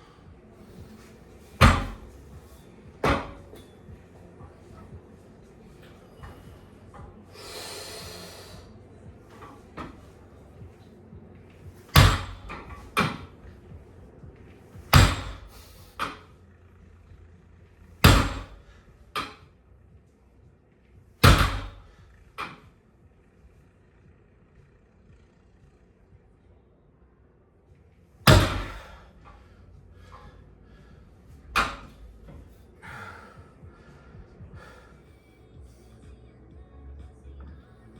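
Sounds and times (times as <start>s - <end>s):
barbell heavy thuds on floor: 0.6s - 4.0s, 11.7s - 13.6s, 14.8s - 16.3s, 18.0s - 19.4s, 21.2s - 22.6s, 28.3s - 32.6s.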